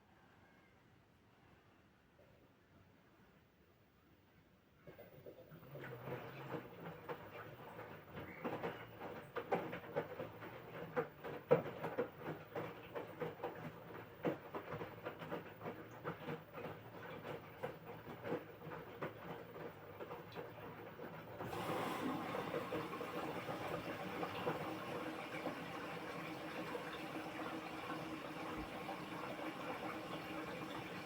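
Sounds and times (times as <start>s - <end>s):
washing machine drum turning: 21.4s - 31.0s
water rushing in: 21.4s - 31.0s.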